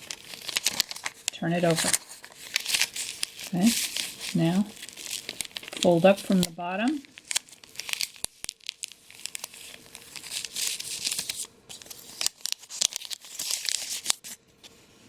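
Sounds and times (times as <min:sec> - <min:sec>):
paper crinkling as folded: 0:00.0 - 0:14.8.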